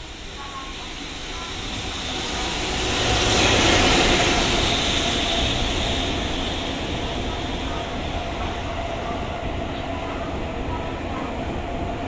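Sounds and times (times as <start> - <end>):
electric locomotive passing: 0.0 - 12.0.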